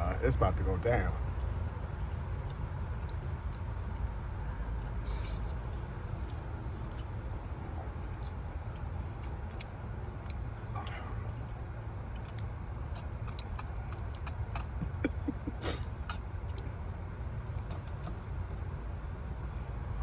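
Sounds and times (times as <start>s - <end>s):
steady low rumble: 0.0s - 20.0s
chewing: 1.2s - 18.7s.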